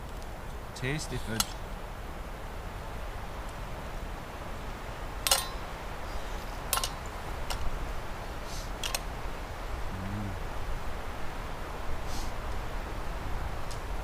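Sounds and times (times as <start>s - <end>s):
low background noise: 0.0s - 14.0s
cutlery clicking against plates: 5.3s - 5.6s
person humming: 9.9s - 10.4s.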